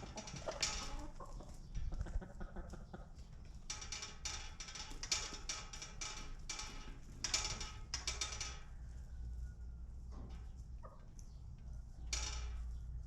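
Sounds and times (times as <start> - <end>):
chickens pecking hard surface: 0.0 - 8.9.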